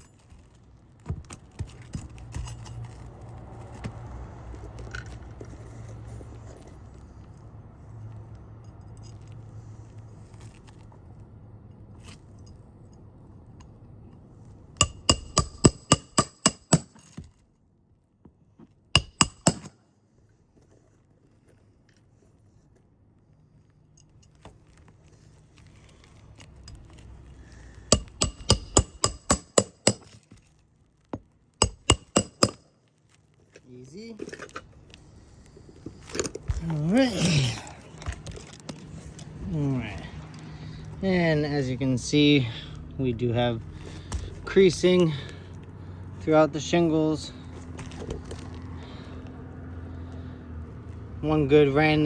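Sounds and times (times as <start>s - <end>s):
hammer striking roofing nails: 14.8s - 17.3s, 19.0s - 19.8s, 27.8s - 30.4s, 31.6s - 32.7s.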